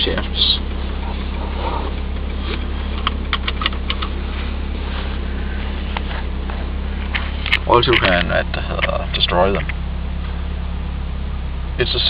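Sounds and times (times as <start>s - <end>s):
car engine idling: 0.0s - 12.0s
sharp clicks: 2.5s - 4.2s.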